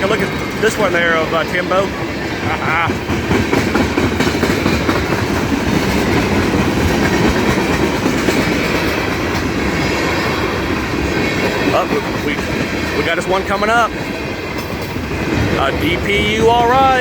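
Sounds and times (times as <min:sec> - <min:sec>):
freight train cars rolling: 0:00.0 - 0:17.0
wheels clacking over rail joints: 0:00.0 - 0:17.0.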